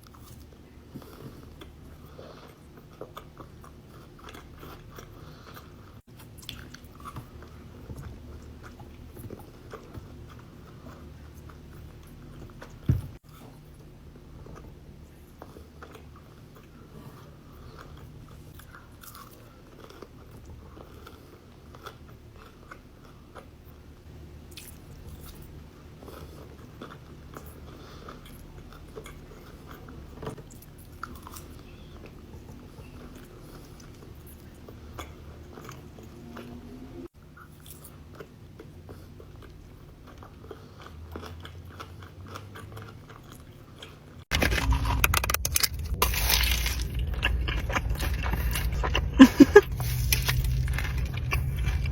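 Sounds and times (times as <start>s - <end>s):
person chewing crunchy food: 0.0s - 23.9s, 24.5s - 51.9s.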